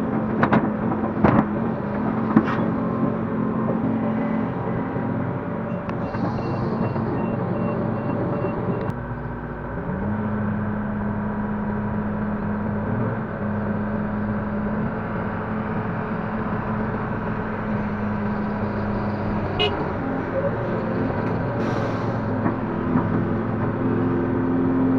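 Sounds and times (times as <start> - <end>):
excavator diesel engine running: 0.0 - 24.9
faint rapid beeping: 5.7 - 8.9.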